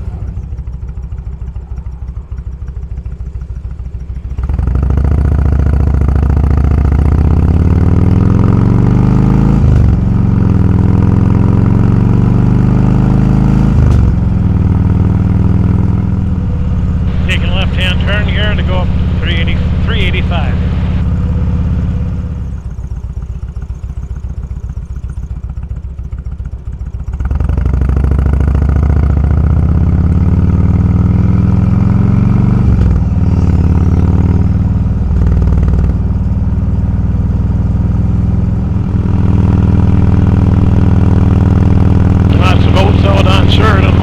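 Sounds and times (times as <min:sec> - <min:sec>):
motorcycle engine accelerating: 0:00.0 - 0:44.0.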